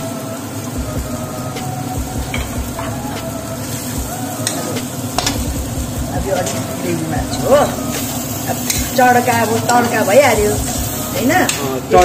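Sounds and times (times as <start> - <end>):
chickpeas sizzling in oil: 0.0 - 12.0.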